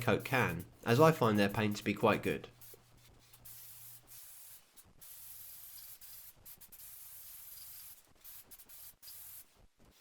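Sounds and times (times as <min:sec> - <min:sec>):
aerosol spray can hissing: 0:03.4 - 0:09.6.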